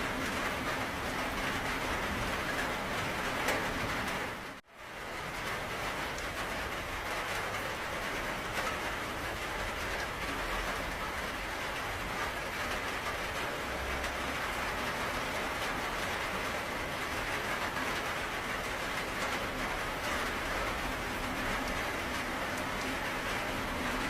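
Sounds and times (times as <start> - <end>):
patter of raindrops: 0.0 - 24.0
rain hissing: 0.0 - 24.0.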